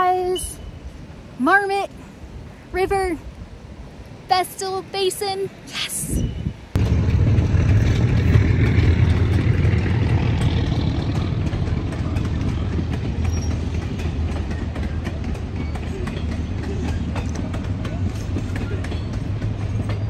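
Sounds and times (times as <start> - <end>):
railroad cars rumbling past: 6.6 - 20.0
wheels clicking over rails: 6.8 - 20.0.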